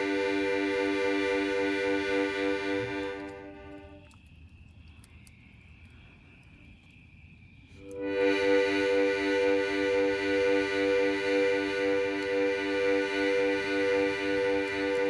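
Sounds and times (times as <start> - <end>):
sustained pulsing chord: 0.0 - 4.0, 7.9 - 15.0.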